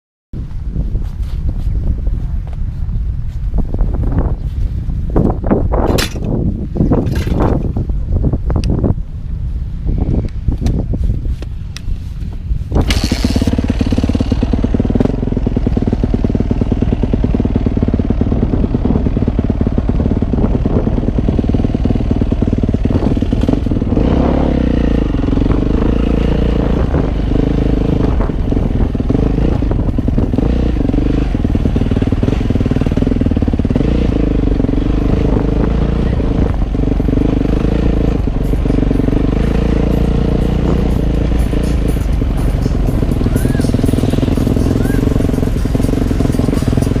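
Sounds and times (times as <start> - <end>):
motocross engine running: 12.7 - 47.0.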